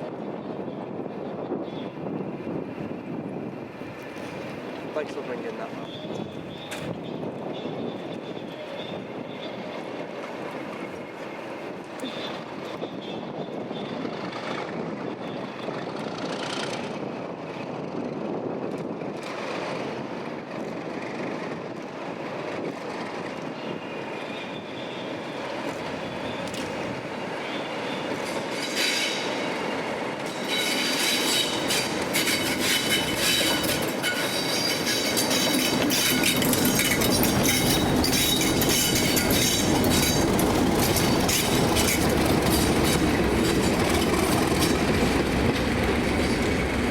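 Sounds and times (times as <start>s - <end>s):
train running on rails: 0.0s - 46.9s
metallic wheel squeal: 27.4s - 44.7s
wheels clicking over track: 27.7s - 46.9s.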